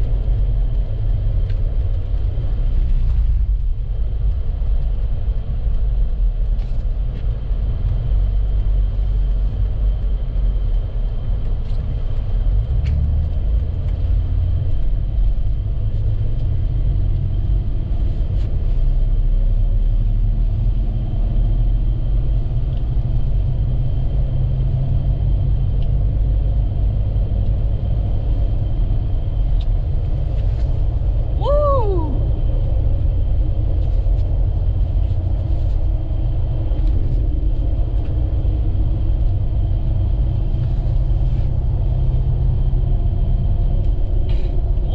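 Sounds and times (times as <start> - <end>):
vehicle driving on highway: 0.0 - 44.9
light ticks: 0.1 - 17.3, 25.7 - 26.7.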